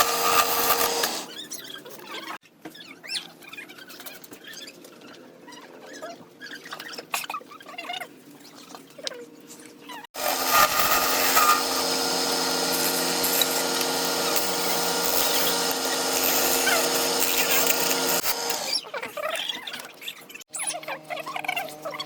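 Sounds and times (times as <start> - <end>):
wood lathe humming: 0.0 - 1.3, 10.2 - 18.8
turning tool cutting wood: 0.0 - 1.4, 10.2 - 18.8
faint scratching and squeaks: 0.2 - 11.9, 12.7 - 22.0.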